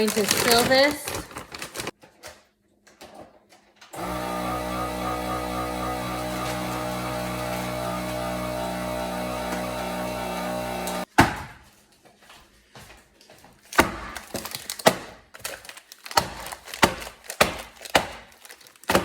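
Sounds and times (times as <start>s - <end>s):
freezer bag knocks and clacks: 0.0s - 2.0s, 13.7s - 19.0s.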